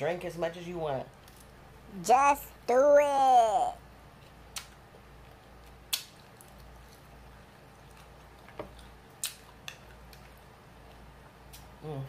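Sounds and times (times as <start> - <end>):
wet mouth smacking while chewing: 5.6 - 11.7.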